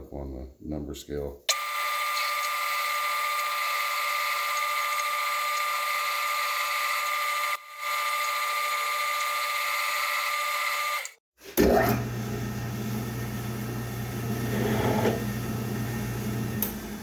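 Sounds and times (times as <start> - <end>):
electric drill whining: 1.5 - 11.2.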